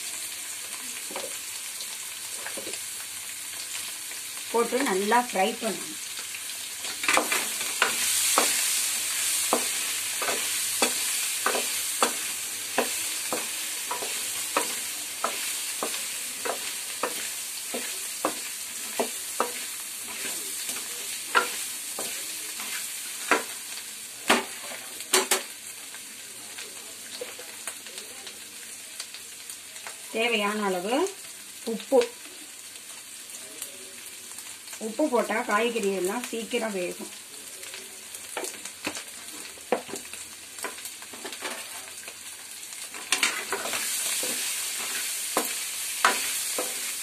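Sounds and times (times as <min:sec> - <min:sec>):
potatoes sizzling in hot oil: 0:00.0 - 0:47.0
spoon scraping and knocking pan: 0:06.8 - 0:23.6, 0:24.2 - 0:25.5, 0:42.9 - 0:47.0.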